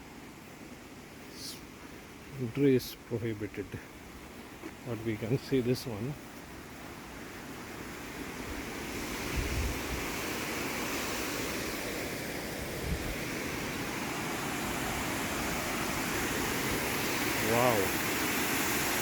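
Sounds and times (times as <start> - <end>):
water rushing out of a dam: 7.2 - 19.0.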